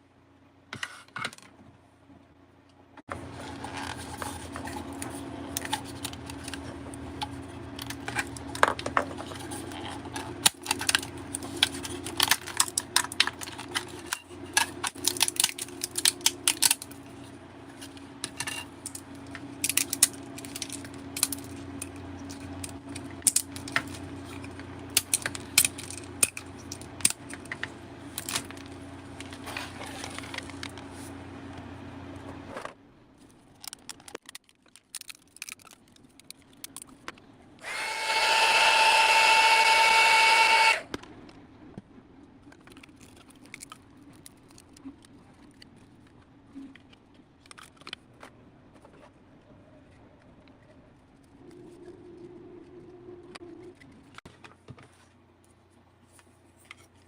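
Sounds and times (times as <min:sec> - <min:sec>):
clicks of small hard objects: 0:33.2 - 0:37.3
steady machine hum: 0:37.6 - 0:41.0.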